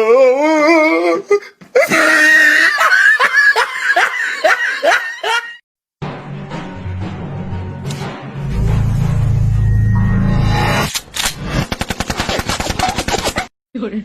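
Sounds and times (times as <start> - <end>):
person laughing hard: 1.8 - 5.6.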